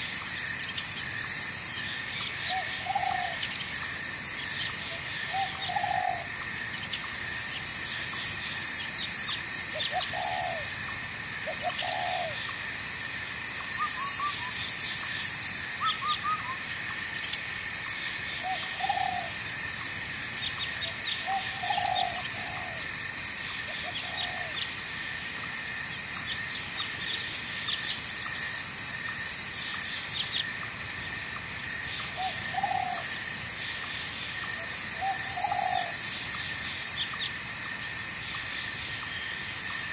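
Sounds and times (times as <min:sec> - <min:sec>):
insect chorus buzzing: 0:00.0 - 0:39.9
owl-like hooting calls: 0:02.5 - 0:03.6, 0:05.3 - 0:06.3, 0:09.7 - 0:10.7, 0:11.4 - 0:12.5, 0:13.8 - 0:14.6, 0:15.8 - 0:16.6, 0:18.4 - 0:19.4, 0:21.2 - 0:22.8, 0:23.7 - 0:24.6, 0:32.2 - 0:33.2, 0:35.0 - 0:36.0.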